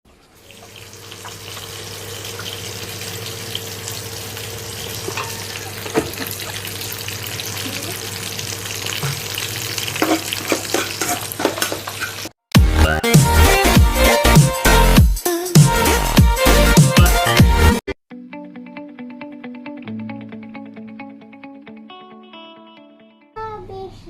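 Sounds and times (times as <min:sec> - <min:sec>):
food sizzling in a frying pan: 0:00.1 - 0:12.3.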